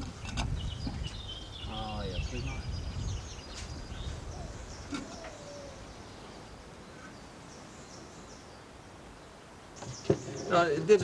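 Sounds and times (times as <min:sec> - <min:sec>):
outdoor background noise: 0:00.0 - 0:11.0
small birds chirping: 0:00.0 - 0:11.0.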